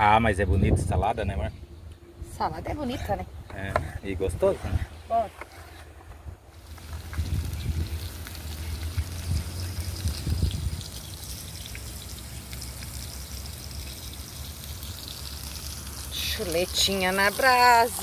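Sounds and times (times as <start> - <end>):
wood fire crackles: 5.1 - 18.0
steaks sizzling in oil: 6.6 - 18.0.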